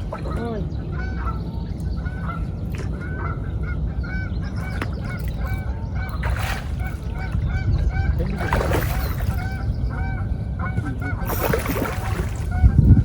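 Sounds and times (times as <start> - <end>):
geese honking: 0.0 - 13.0
low steady rumble: 0.0 - 13.0.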